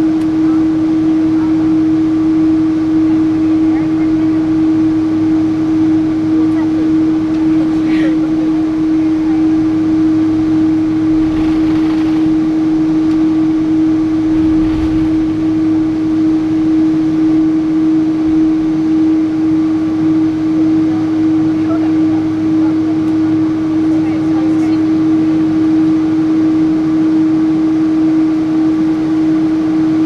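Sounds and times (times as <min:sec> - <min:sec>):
steady hum tone: 0:00.0 - 0:30.0
jet engine and air rush: 0:10.8 - 0:17.7.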